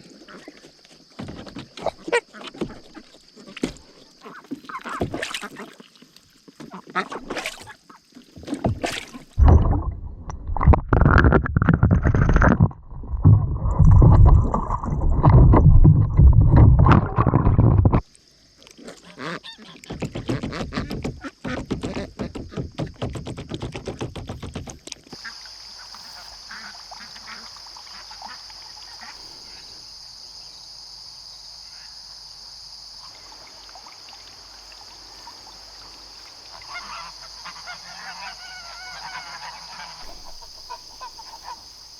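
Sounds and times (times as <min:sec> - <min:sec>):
ducks and geese quacking and honking: 0:18.8 - 0:22.1, 0:26.2 - 0:29.2, 0:36.5 - 0:41.7.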